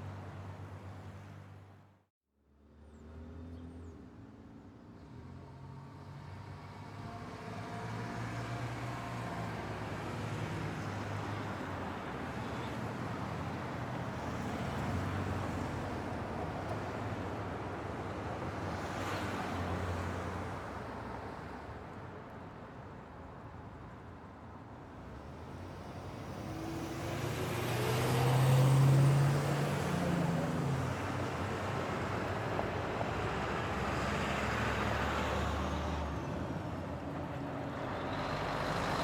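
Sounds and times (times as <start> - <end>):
vehicles passing: 24.9 - 39.0.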